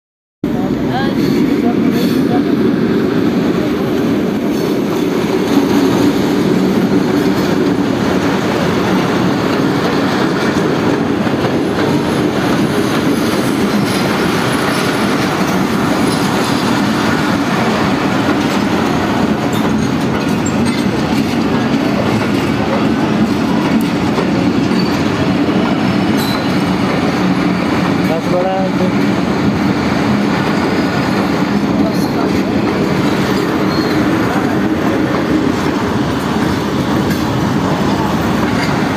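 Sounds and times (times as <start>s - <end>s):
train wheels rumbling on rails: 0.5s - 38.9s.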